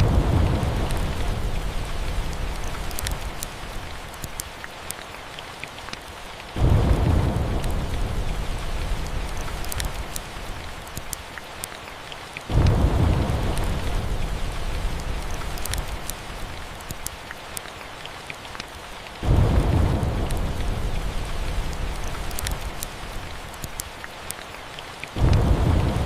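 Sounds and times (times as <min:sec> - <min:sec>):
low roll of thunder: 0:00.0 - 0:02.8, 0:06.6 - 0:09.6, 0:12.5 - 0:15.5, 0:19.2 - 0:22.3, 0:25.2 - 0:26.0
fireplace crackles: 0:00.0 - 0:11.7, 0:12.4 - 0:26.0
steady rain: 0:00.0 - 0:26.0.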